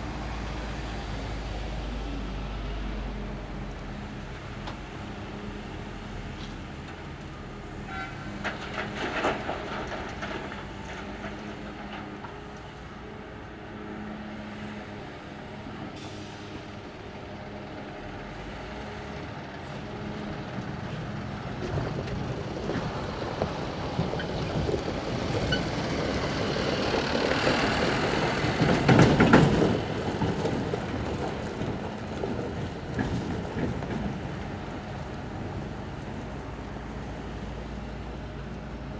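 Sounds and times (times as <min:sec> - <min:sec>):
heavy diesel engines running: 0:00.0 - 0:38.9.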